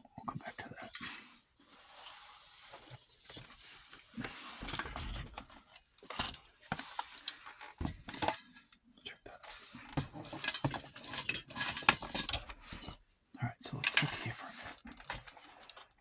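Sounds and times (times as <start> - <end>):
rustling of handled objects: 0.7 - 16.0
small clicks and knocks: 14.8 - 16.0.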